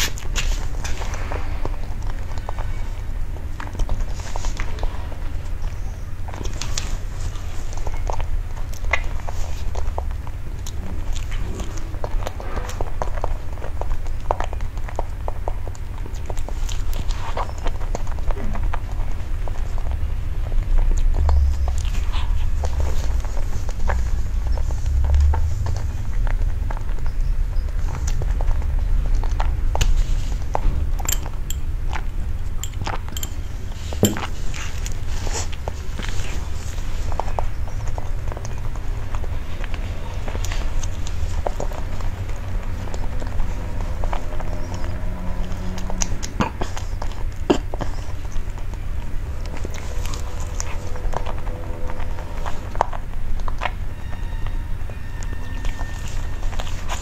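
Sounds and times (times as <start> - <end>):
close-miked chewing: 0.0 - 57.0
steady low hum: 0.0 - 57.0
low rumble: 17.8 - 46.3, 48.0 - 57.0
sipping and swallowing: 40.7 - 52.8.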